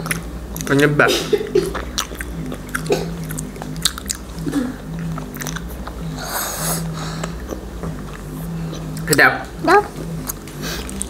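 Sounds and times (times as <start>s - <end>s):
chewing and biting soft food: 1.6s - 9.2s, 9.9s - 11.0s
wet mouth clicks: 1.7s - 6.0s.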